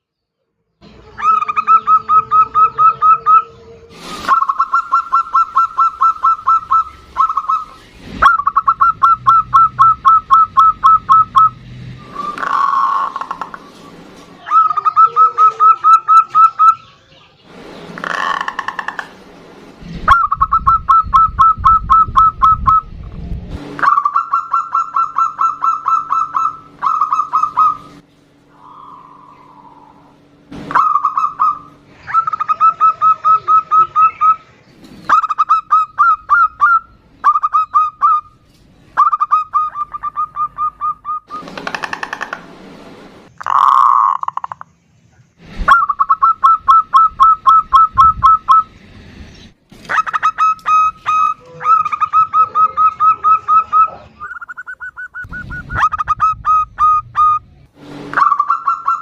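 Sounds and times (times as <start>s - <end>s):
dove trills: 0.8s - 17.0s, 20.0s - 22.9s, 23.8s - 38.4s, 39.0s - 42.4s, 45.7s - 48.8s, 49.9s - 57.4s, 58.1s - 59.0s
dove cooing: 1.1s - 16.9s, 23.8s - 34.5s, 49.9s - 57.4s.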